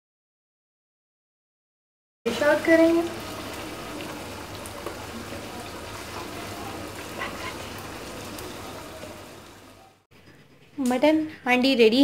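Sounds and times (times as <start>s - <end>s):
meat sizzling in hot oil: 2.3s - 9.8s.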